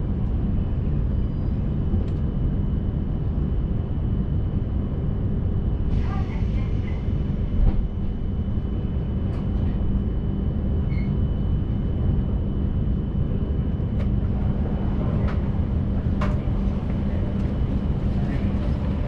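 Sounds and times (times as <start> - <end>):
low rumble of train at speed: 0.0 - 19.0.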